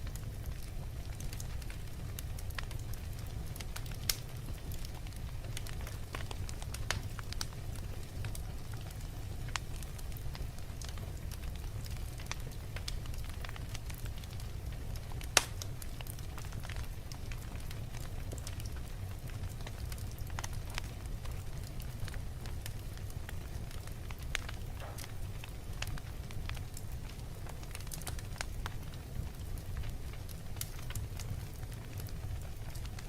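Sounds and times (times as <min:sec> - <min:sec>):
fire crackling and snapping: 0:00.0 - 0:33.0
fire flames rumbling: 0:00.0 - 0:33.0
sharp wood fire pop: 0:00.1 - 0:07.6, 0:15.0 - 0:17.4, 0:23.7 - 0:29.4.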